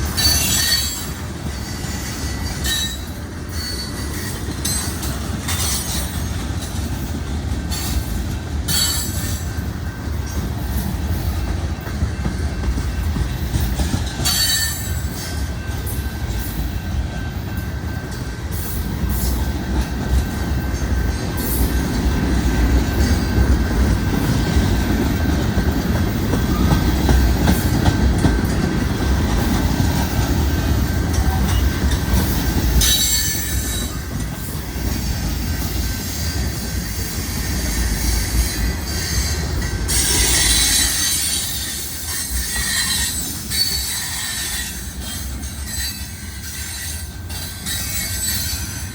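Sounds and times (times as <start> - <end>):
train wheels rumbling on rail: 0.0 - 48.9
high-pitched wheel squeal: 38.4 - 44.9.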